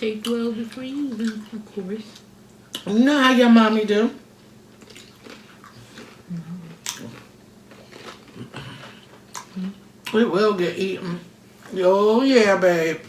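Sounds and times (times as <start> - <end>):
person chewing food: 4.7 - 10.2.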